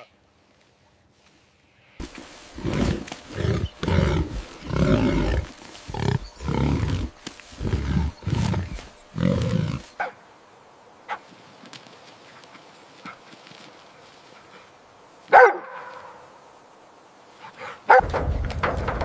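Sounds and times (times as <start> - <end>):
animal calling roughly: 2.0 - 10.2.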